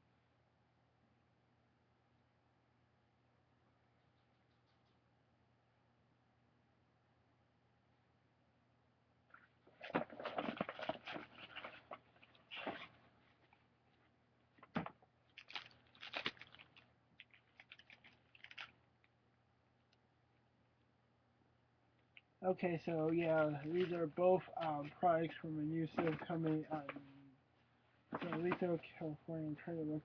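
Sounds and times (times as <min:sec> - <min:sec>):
faint low hum: 0:00.0 - 0:30.0
packaging crinkling and rustling: 0:09.7 - 0:13.6, 0:15.3 - 0:19.1.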